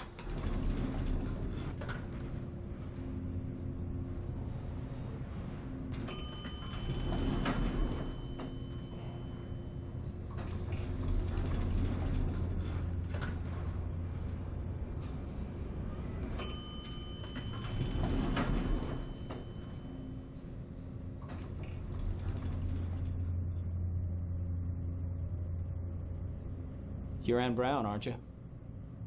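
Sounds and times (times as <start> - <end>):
sliding doors and mechanism: 0.0 - 26.3
elevator machinery hum: 0.0 - 29.0
elevator bell ding: 5.8 - 10.2, 16.3 - 20.6.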